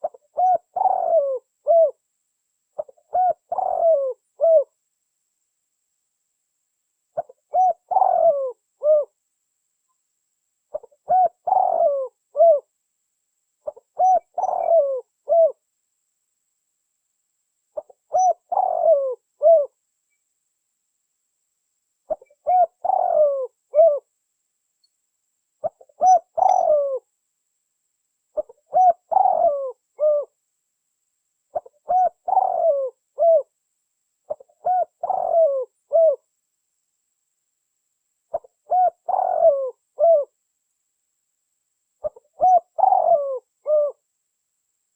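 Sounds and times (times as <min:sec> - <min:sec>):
dove cooing: 0:00.0 - 0:02.0, 0:02.8 - 0:04.7, 0:07.2 - 0:09.2, 0:10.7 - 0:12.7, 0:13.6 - 0:15.6, 0:17.8 - 0:19.8, 0:22.1 - 0:24.1, 0:25.6 - 0:27.1, 0:28.4 - 0:30.4, 0:31.5 - 0:33.5, 0:34.3 - 0:36.2, 0:38.3 - 0:40.4, 0:42.0 - 0:44.0.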